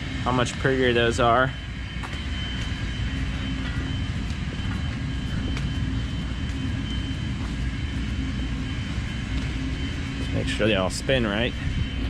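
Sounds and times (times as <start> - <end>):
faint high whine: 0.0 - 12.0.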